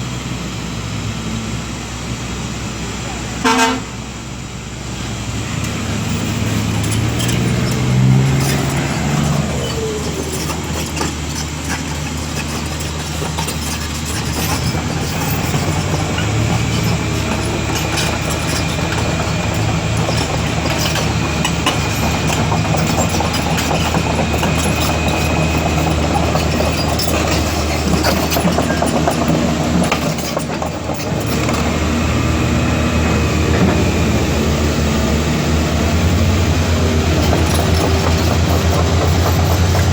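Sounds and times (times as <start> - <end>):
heavy diesel engine revving: 0.0 - 39.9.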